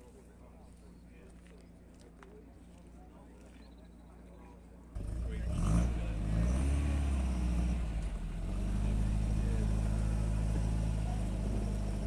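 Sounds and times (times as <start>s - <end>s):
car engine idling: 7.2s - 12.0s.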